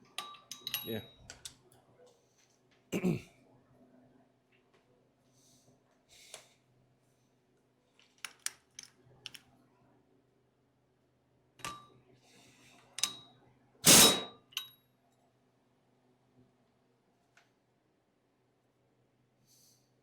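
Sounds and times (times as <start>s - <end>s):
metal tools clicking: 0.2s - 1.6s.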